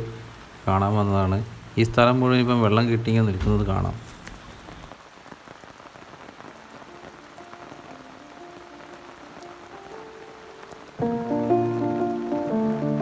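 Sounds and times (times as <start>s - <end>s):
steady rain falling: 0.0s - 13.0s
background music: 6.9s - 13.0s.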